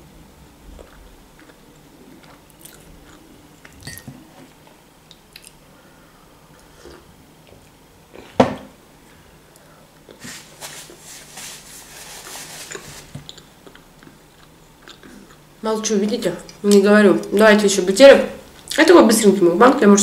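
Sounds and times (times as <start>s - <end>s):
crunchy chewing: 0.7s - 3.8s.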